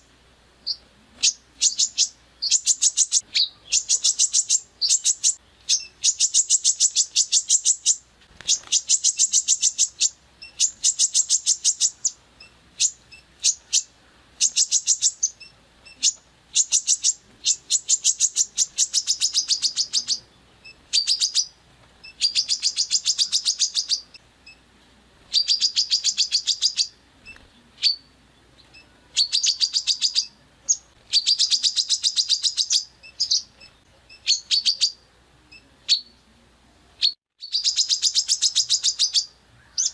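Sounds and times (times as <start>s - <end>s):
songbird rapid trills: 0.0s - 36.2s.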